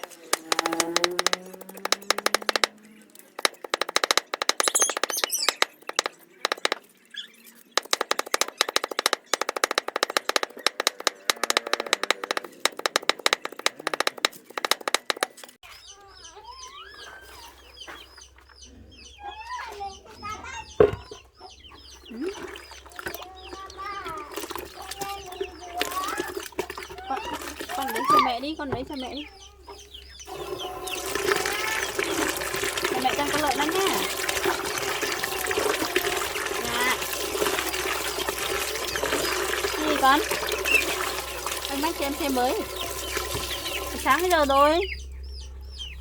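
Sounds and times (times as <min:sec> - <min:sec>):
rapid clatter of sharp clicks: 0:00.0 - 0:04.8, 0:05.6 - 0:06.9, 0:07.6 - 0:15.6
birds chirping: 0:00.0 - 0:46.0
chickens calling: 0:04.6 - 0:06.4, 0:10.5 - 0:46.0.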